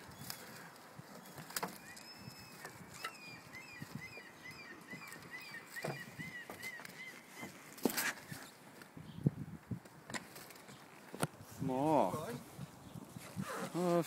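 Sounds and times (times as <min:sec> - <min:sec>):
high bird chirps: 0:01.2 - 0:07.5.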